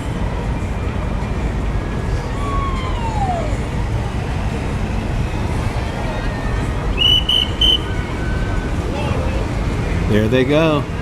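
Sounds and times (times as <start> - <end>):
low rumble of city traffic: 0.0 - 11.0
high tone gliding down: 1.8 - 9.5.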